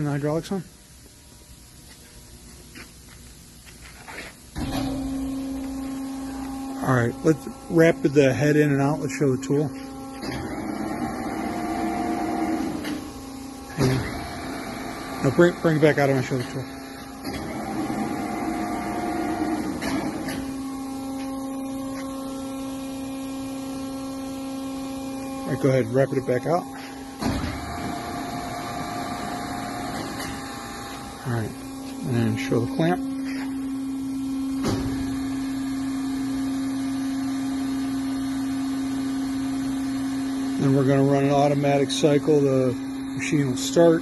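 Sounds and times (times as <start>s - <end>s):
hydraulic unit humming: 0.0s - 44.0s
drill head traversing with a whir: 5.6s - 13.1s, 13.7s - 31.2s.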